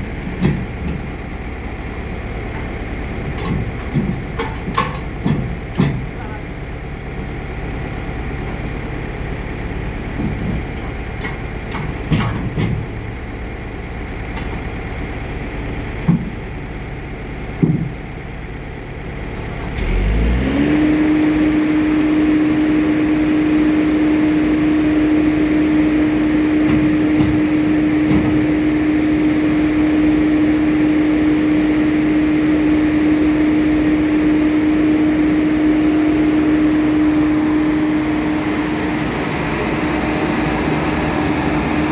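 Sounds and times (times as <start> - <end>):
knocks and clunks: 0.2 - 1.2, 2.4 - 6.6, 10.1 - 13.0, 16.0 - 16.5, 17.6 - 18.1, 26.2 - 28.9
diesel engine revving: 18.2 - 41.9.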